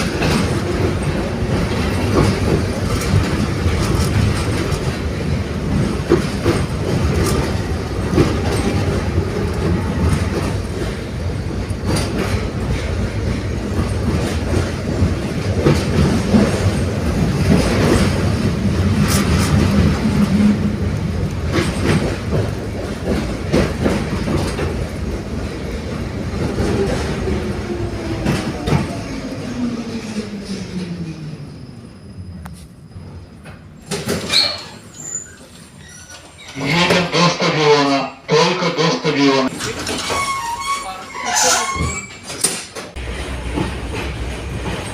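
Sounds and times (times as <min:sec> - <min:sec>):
wheels clacking over rail joints: 0:00.0 - 0:29.1
tram running along track: 0:00.0 - 0:44.9.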